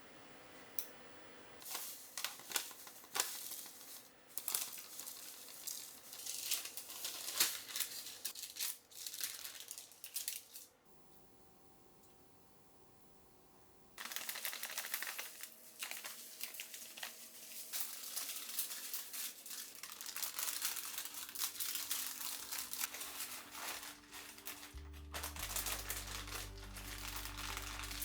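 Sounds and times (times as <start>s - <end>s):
background music with bass: 24.1s - 28.0s.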